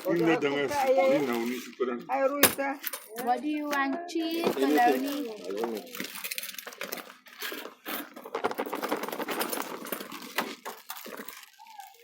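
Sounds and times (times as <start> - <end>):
plastic bag crinkling: 0.0 - 1.8, 4.2 - 12.0.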